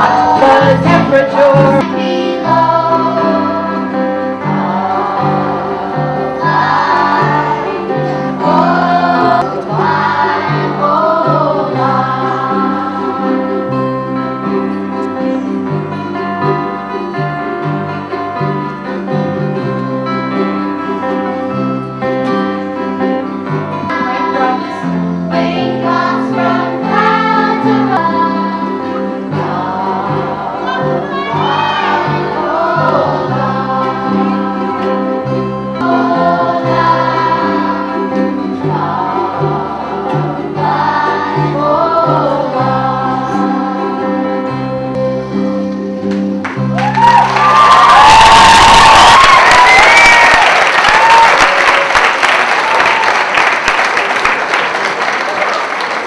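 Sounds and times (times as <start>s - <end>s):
children's choir singing: 0.0s - 17.6s, 23.8s - 45.7s
keyboard accompaniment: 0.0s - 51.2s.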